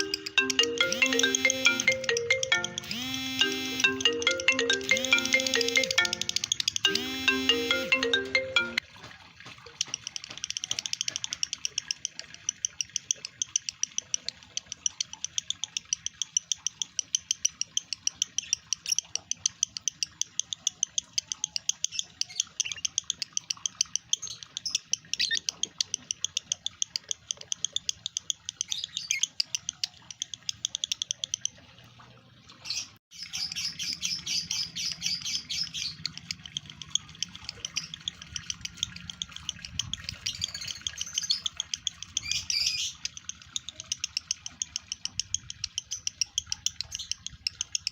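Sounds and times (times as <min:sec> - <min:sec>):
lovebird chattering: 0:00.0 - 0:08.8, 0:33.2 - 0:47.9.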